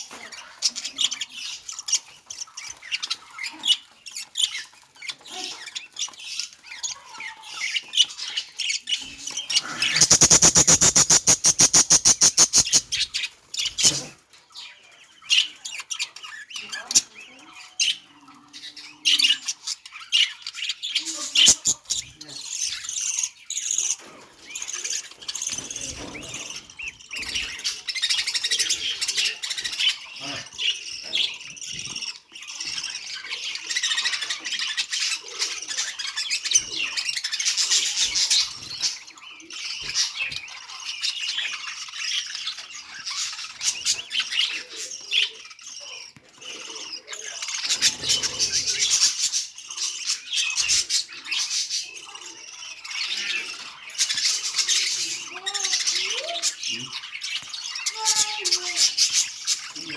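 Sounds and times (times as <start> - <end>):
budgerigar chirping and warbling: 9.4 - 14.1.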